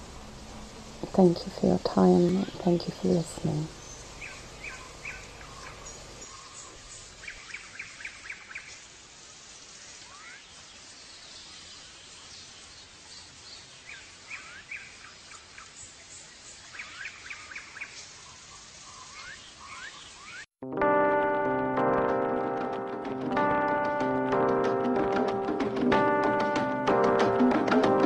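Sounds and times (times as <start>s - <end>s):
steady background hiss: 0.0s - 20.4s
birds chirping: 0.4s - 8.9s, 10.1s - 20.5s.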